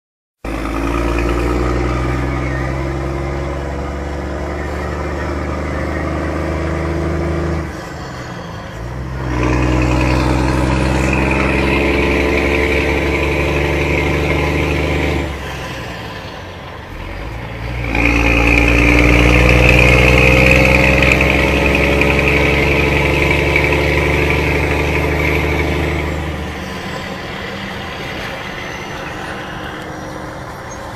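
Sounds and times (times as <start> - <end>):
truck diesel engine pulling: 0.4 - 30.9.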